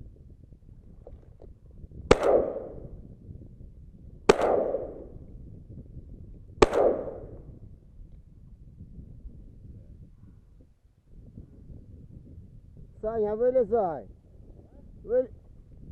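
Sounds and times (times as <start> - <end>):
shotgun shots: 2.1 - 2.9, 4.3 - 5.2, 6.6 - 7.4
gunshot echo: 2.1 - 3.0, 4.3 - 5.2, 6.6 - 7.4.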